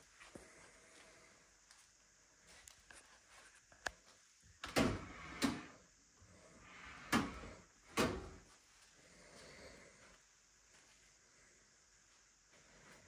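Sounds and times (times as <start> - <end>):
doors shutting with clunks: 4.6 - 5.8, 7.0 - 8.4.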